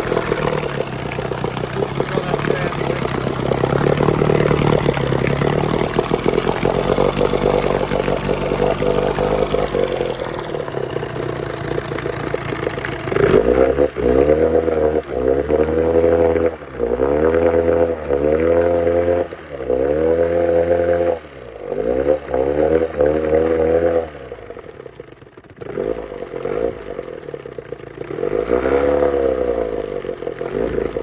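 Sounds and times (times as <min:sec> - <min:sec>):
outboard engine revving: 0:00.0 - 0:31.0.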